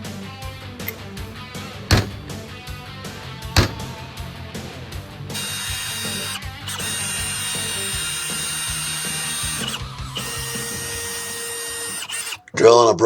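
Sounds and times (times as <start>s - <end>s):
power drill whining: 0.8s - 2.3s, 3.6s - 4.0s, 5.1s - 12.6s.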